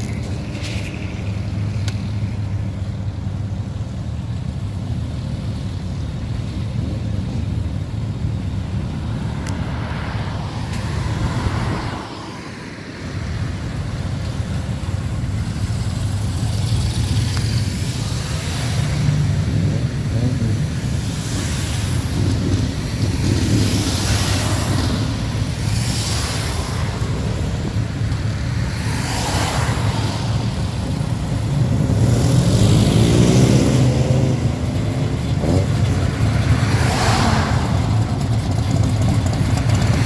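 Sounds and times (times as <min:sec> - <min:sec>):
car engine rumbling: 0:13.0 - 0:40.0.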